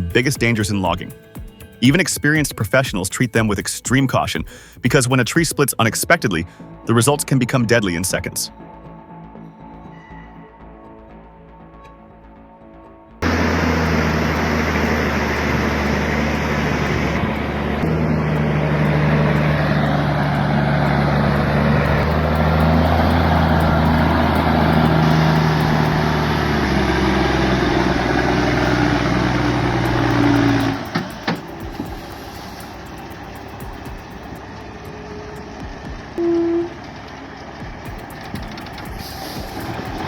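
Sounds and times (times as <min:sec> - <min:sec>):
large engine running: 0:13.2 - 0:40.0.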